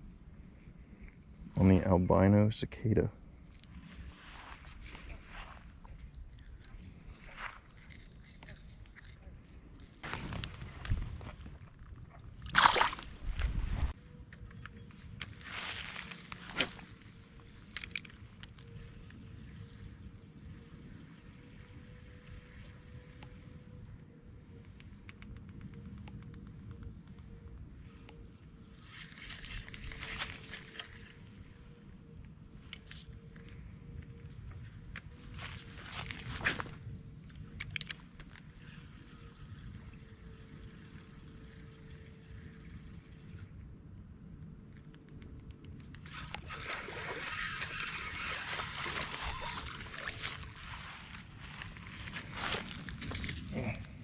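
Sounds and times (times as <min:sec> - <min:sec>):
high-pitched insect drone: 0:03.1 - 0:13.0, 0:13.6 - 0:54.0
water splashing and sloshing: 0:10.0 - 0:14.0, 0:46.0 - 0:53.3.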